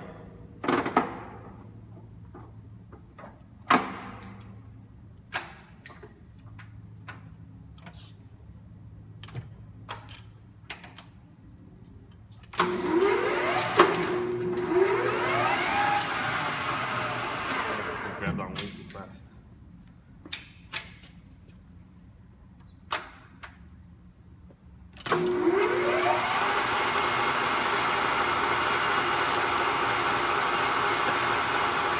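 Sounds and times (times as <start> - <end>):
lathe spindle whining up: 12.6 - 18.2, 25.1 - 31.9.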